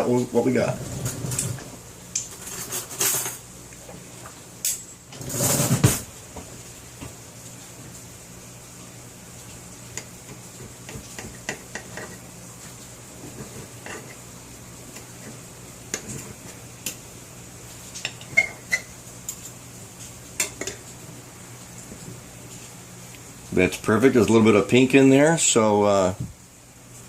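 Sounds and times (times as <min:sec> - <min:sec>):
cutlery scraping on a plate: 0:02.2 - 0:03.4, 0:10.9 - 0:12.2, 0:13.3 - 0:14.2, 0:18.0 - 0:19.5.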